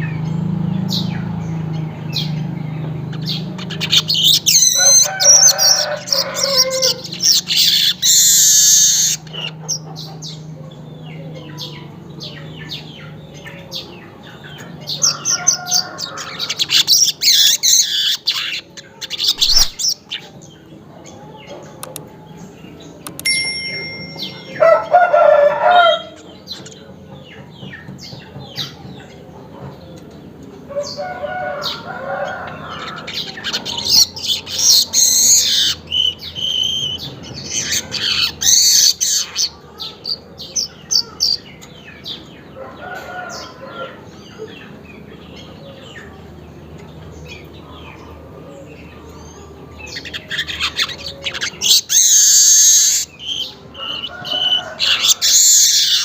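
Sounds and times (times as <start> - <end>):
weaver birds chattering: 0.0 - 23.3, 24.1 - 56.0
rooster crowing: 4.5 - 7.2, 14.9 - 16.8, 23.9 - 26.2, 30.7 - 34.0, 42.6 - 44.1, 53.7 - 56.0.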